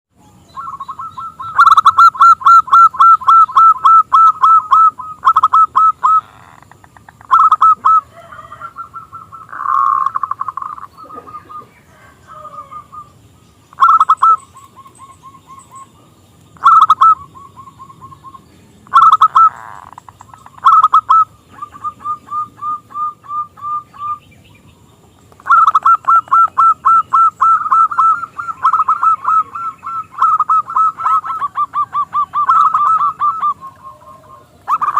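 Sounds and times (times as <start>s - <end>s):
dove calling rapid repeated notes: 0.4s - 24.4s, 25.2s - 34.9s.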